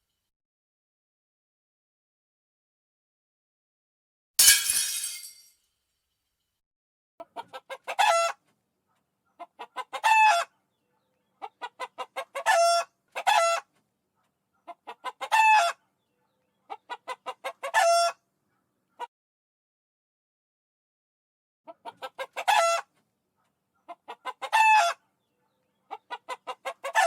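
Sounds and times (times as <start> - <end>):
chicken cackling: 7.2 - 18.3, 21.7 - 27.0.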